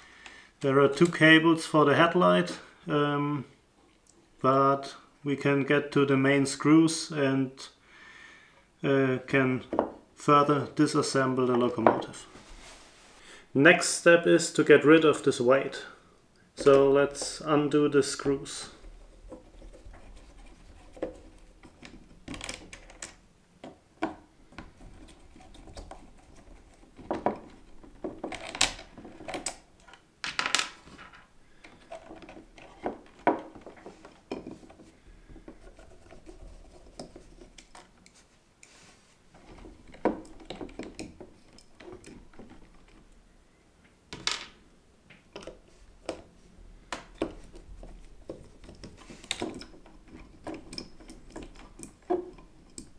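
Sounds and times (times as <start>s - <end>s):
small screws and parts handled: 25.1s - 38.2s.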